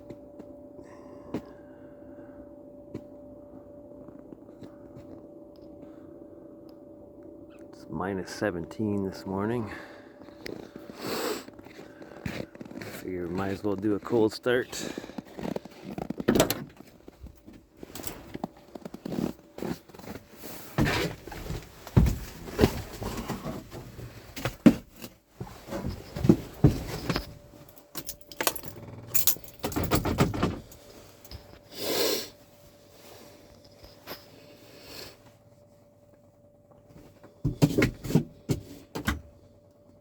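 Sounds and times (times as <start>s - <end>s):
faint steady tone: 0.0s - 11.0s, 21.4s - 37.4s
person moving about: 9.3s - 27.9s
keys clinking: 27.0s - 31.6s.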